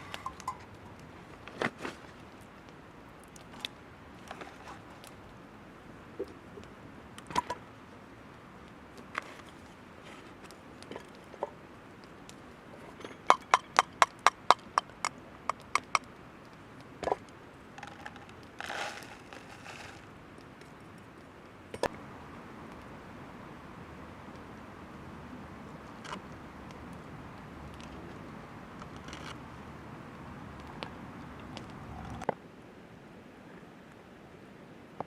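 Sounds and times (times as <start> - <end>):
scraping or rustling: 0.0 - 2.2, 17.8 - 20.1.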